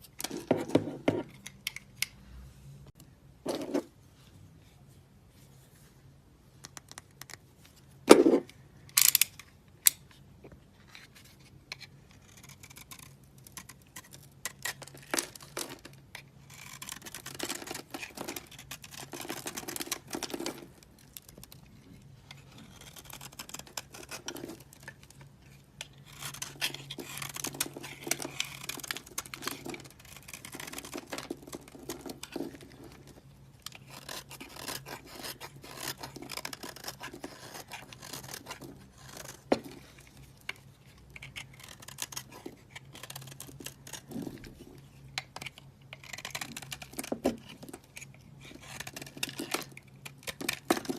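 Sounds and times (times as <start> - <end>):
soap scraping and crumbling: 10.8 - 50.9.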